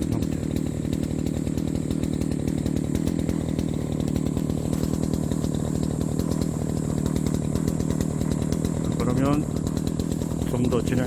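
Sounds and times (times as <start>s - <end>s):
brush cutter engine running: 0.0s - 11.0s.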